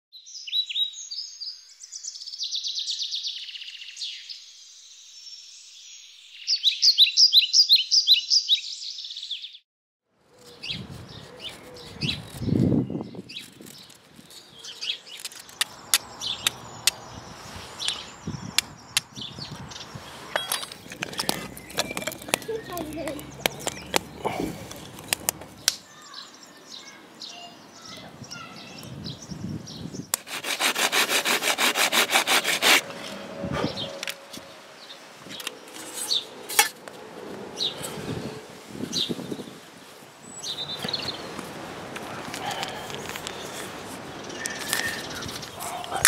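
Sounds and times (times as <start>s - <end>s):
songbirds singing: 0.2s - 9.6s, 10.3s - 30.6s, 37.4s - 46.0s
sharp clicks with rustling: 20.3s - 25.8s.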